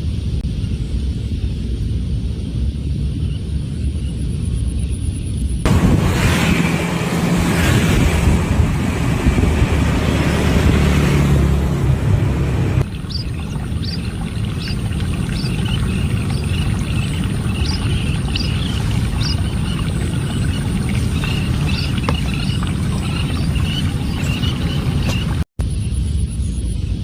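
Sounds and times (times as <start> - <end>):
low rumble with rushing hiss: 0.0 - 27.0
birds chirping: 5.7 - 25.5.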